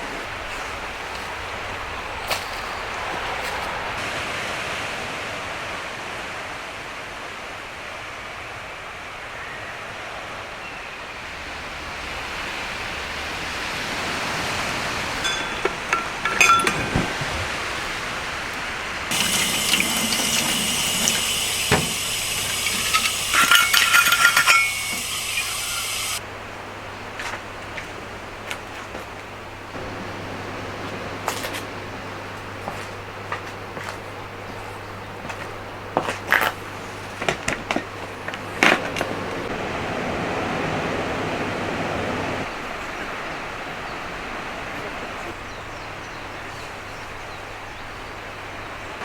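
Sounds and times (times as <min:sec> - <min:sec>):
sea waves washing in: 0:00.0 - 0:09.4, 0:10.0 - 0:33.2, 0:37.8 - 0:46.0
metallic clinks of cookware: 0:15.2 - 0:16.9, 0:22.9 - 0:25.5
liquid pouring into container: 0:19.1 - 0:26.2.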